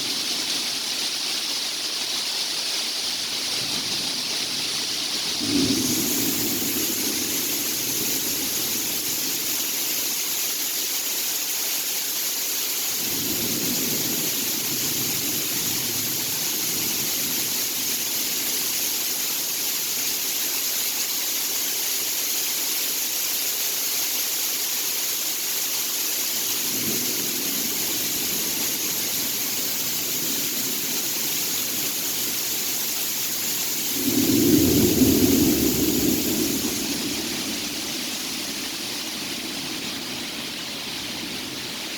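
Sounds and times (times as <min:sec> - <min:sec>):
rain hissing: 0:00.0 - 0:41.9
thunder rumbling: 0:05.3 - 0:09.6, 0:26.7 - 0:40.5.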